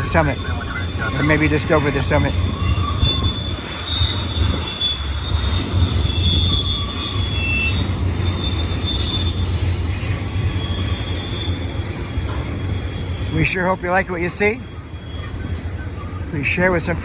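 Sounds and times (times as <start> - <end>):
freight train rumbling past: 0.0 - 17.0
high thin wheel squeal: 0.0 - 17.0.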